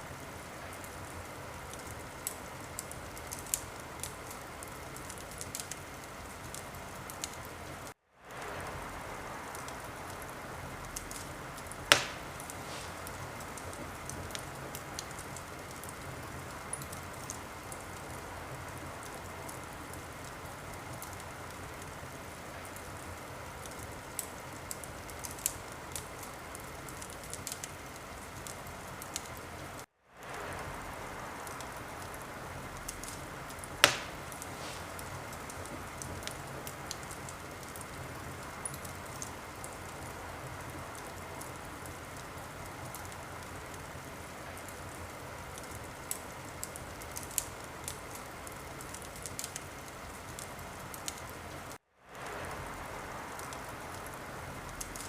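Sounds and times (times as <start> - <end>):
wood fire crackling: 0.0 - 55.0
loud fire pop: 11.8 - 13.2, 33.8 - 35.2.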